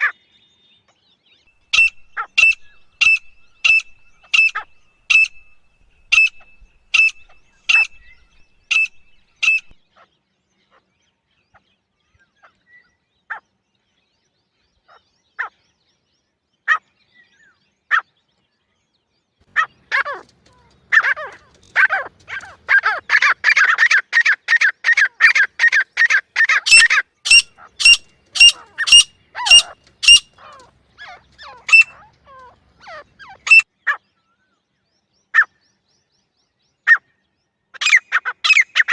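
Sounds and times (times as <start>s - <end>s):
francolin calling: 1.7s - 9.8s, 25.3s - 32.0s, 33.3s - 33.6s.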